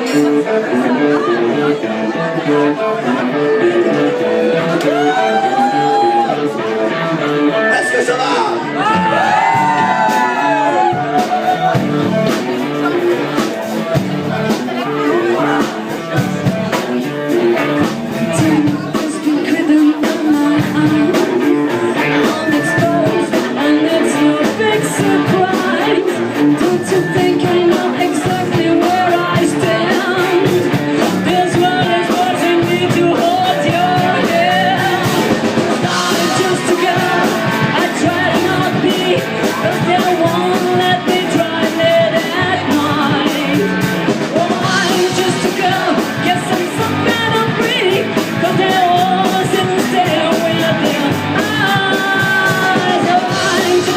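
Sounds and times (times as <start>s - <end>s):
drums: 0.0s - 53.9s
guitars: 0.0s - 53.9s
lead vocal singing: 18.3s - 53.9s.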